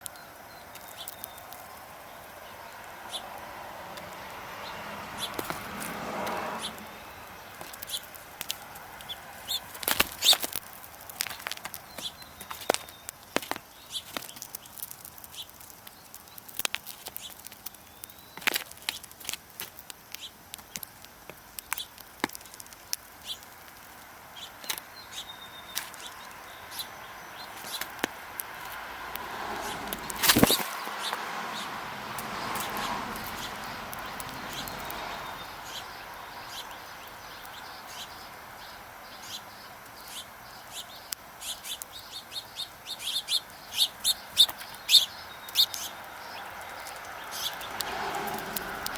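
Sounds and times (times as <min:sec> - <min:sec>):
sharp clicks: 0:43.4 - 0:48.9.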